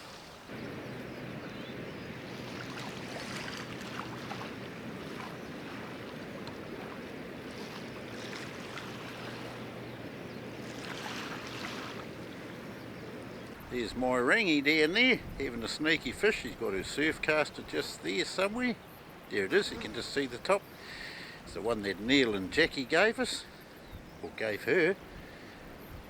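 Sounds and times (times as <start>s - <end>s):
water lapping around canoe: 0.0s - 24.4s
faint low hum: 0.5s - 18.4s.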